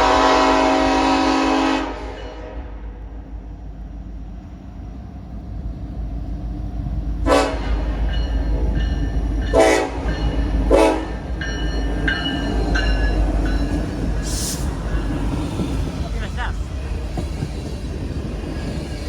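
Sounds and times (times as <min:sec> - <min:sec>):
locomotive horn blasts: 0:00.0 - 0:03.0, 0:07.2 - 0:08.0, 0:09.5 - 0:11.3
freight train rumbling: 0:00.0 - 0:19.0.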